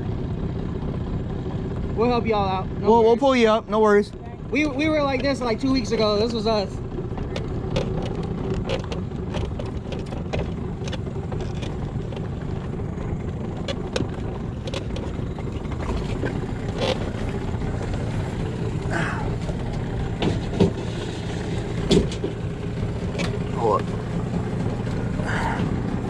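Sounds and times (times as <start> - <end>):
boat motor running: 0.0 - 26.0
light clicks and knocks: 7.1 - 12.7.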